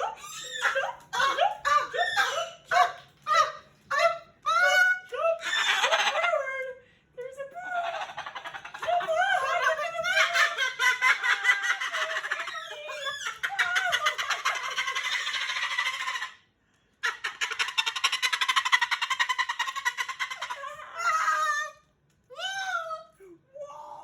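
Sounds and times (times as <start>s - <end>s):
cockatoo chattering: 7.6s - 16.4s, 17.0s - 21.6s.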